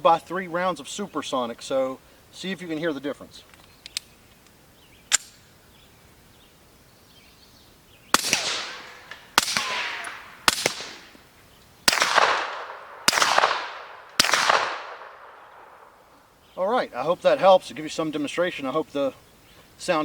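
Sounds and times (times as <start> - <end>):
sharp click: 3.5 - 4.1, 5.1 - 5.4
suppressed pistol shots: 8.1 - 11.2, 11.9 - 16.0.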